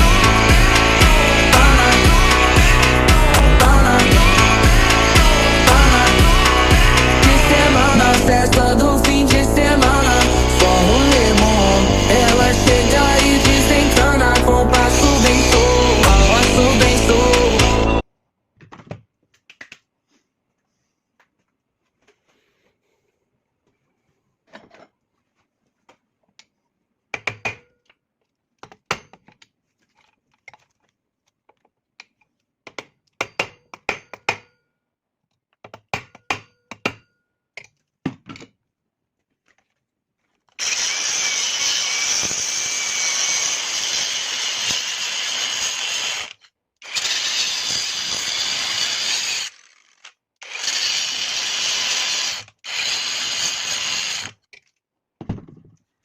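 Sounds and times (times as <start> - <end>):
power tool running: 0.0 - 18.0, 40.6 - 54.3.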